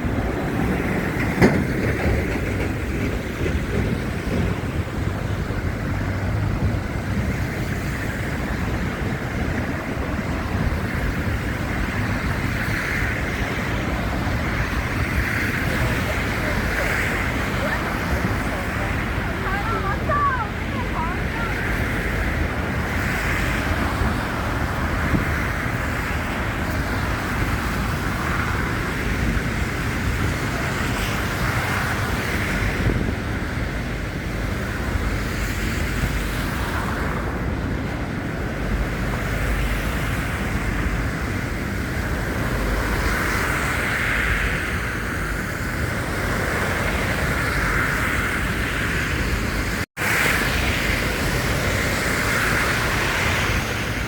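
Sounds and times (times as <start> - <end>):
city traffic: 0.0 - 54.0
wind buffeting microphone: 0.0 - 54.0.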